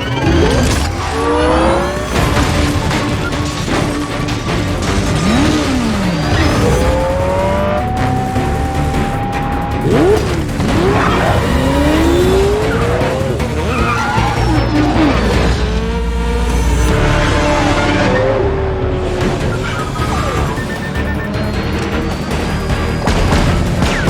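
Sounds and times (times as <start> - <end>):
tyres squealing: 0.0 - 15.6
car engines revving: 0.0 - 24.0
orchestral film score: 0.0 - 24.0.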